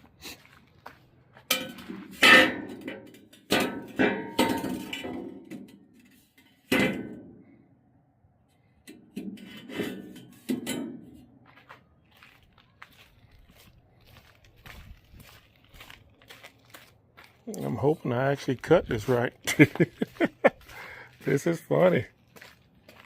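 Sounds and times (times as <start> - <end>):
steel pieces clanking: 1.5 - 7.1.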